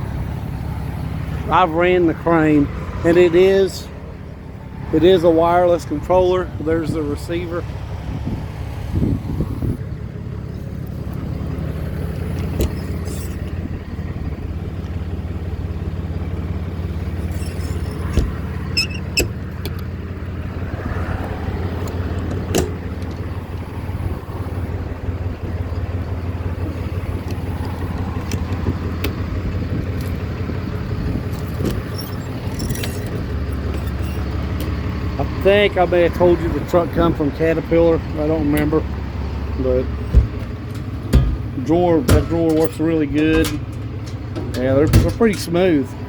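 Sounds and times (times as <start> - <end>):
diesel truck engine idling: 0.0 - 46.0
short clicks and knocks: 39.9 - 45.5.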